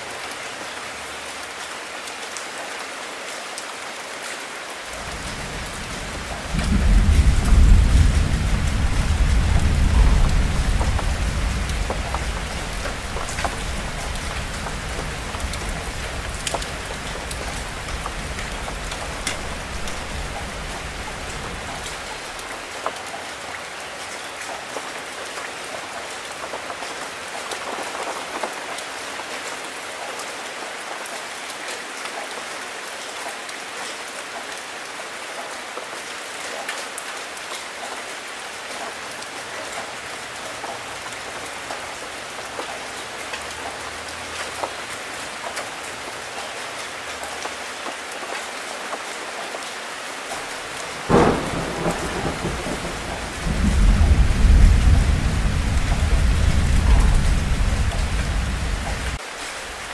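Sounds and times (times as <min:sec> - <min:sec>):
rain falling on leaves: 0:00.0 - 0:59.9
distant thunder rumble: 0:05.0 - 0:22.4, 0:50.9 - 0:59.2
sharp raindrop hits: 0:05.0 - 0:22.4, 0:50.4 - 0:59.2.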